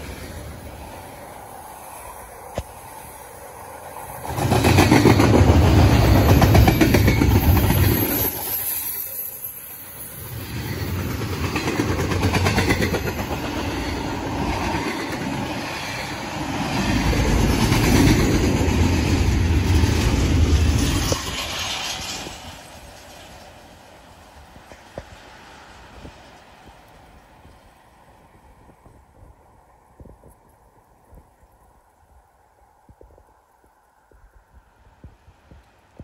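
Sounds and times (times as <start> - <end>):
train wheels rumbling and clacking: 3.7 - 26.7.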